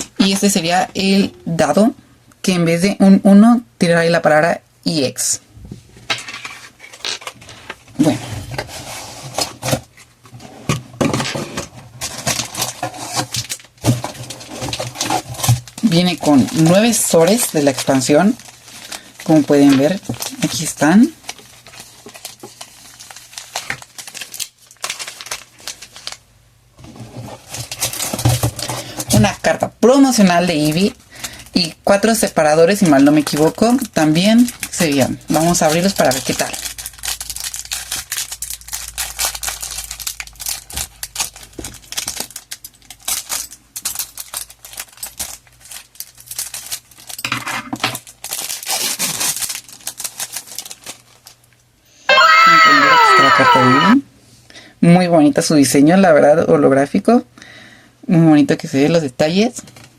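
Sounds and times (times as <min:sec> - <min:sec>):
foil wrappers crinkling: 0:11.9 - 0:26.2, 0:27.2 - 0:29.0, 0:30.5 - 0:31.6, 0:32.2 - 0:47.3, 0:47.9 - 0:51.5.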